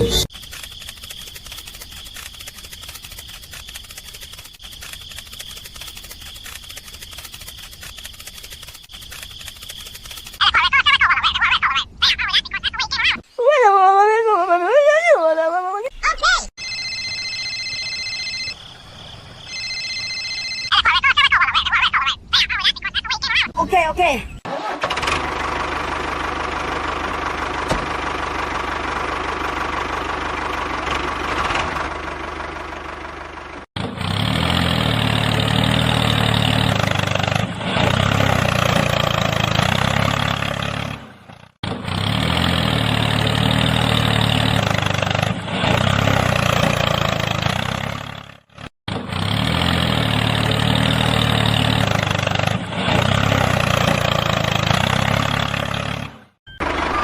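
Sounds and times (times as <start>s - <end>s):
engine running steadily: 24.6s - 57.0s.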